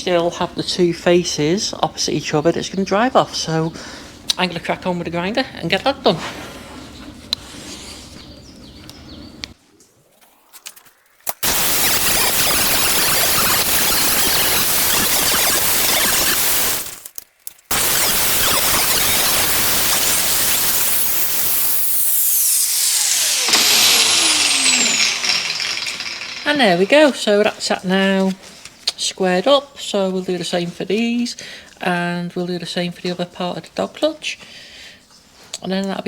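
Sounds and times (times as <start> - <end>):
angle grinder grinding steel: 11.3 - 27.4.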